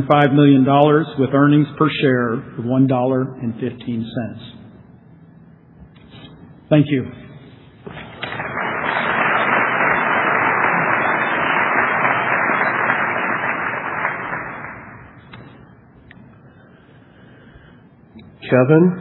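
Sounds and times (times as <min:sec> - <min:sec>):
audience applauding: 0:08.0 - 0:15.3.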